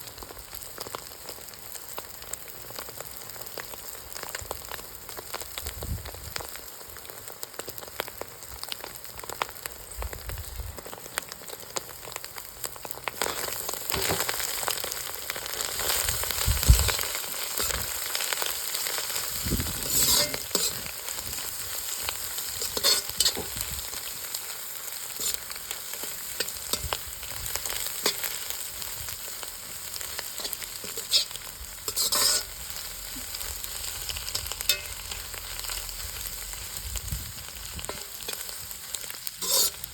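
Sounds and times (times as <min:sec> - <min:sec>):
food sizzling in a pan: 0:00.0 - 0:39.9
spatula scraping a pan: 0:15.6 - 0:24.1, 0:25.0 - 0:28.6, 0:29.9 - 0:33.4, 0:34.2 - 0:35.3, 0:37.7 - 0:38.6, 0:39.3 - 0:39.9.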